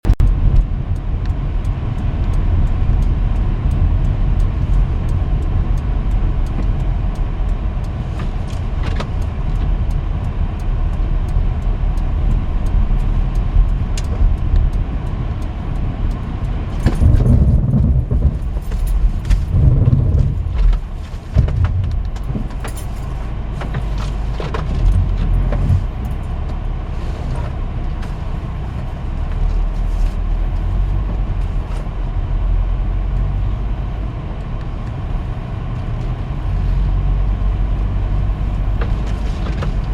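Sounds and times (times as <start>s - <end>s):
road and engine rumble: 0.0s - 39.9s
small clicks and rattles: 0.2s - 26.7s.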